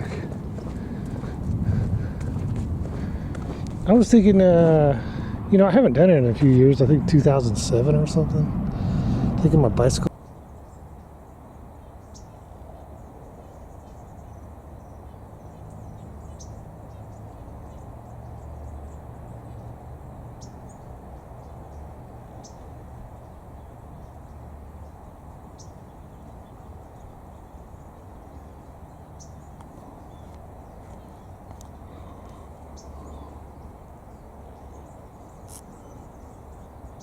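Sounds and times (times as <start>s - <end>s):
low rumble: 0.0s - 10.1s.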